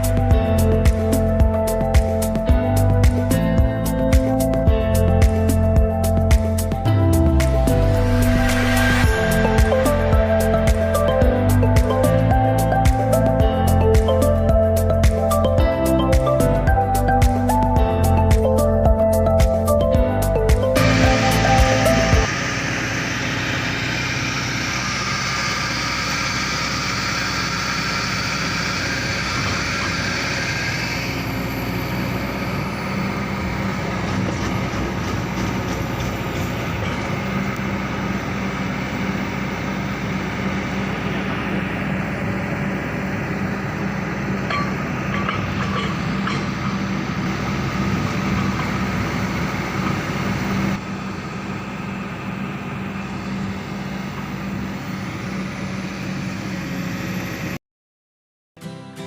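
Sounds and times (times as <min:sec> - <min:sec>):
excavator diesel engine running: 0:00.0 - 0:57.6.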